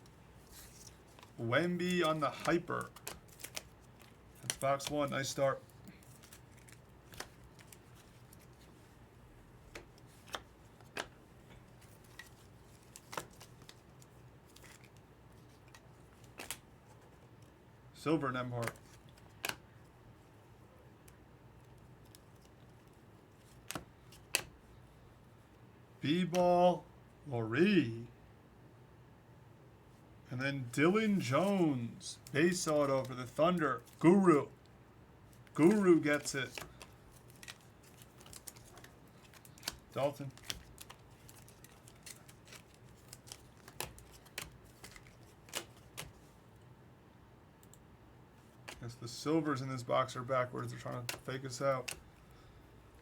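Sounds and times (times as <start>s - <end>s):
cards rustling: 0.0s - 9.0s, 9.6s - 17.6s, 18.2s - 19.8s, 21.0s - 24.6s, 30.6s - 34.6s, 35.3s - 46.4s, 48.4s - 52.6s
faint room hiss: 0.0s - 53.0s
cards clicking and snapping: 0.5s - 8.6s, 9.7s - 16.6s, 18.6s - 19.6s, 23.4s - 24.6s, 35.4s - 46.2s, 48.6s - 48.8s, 50.7s - 52.1s.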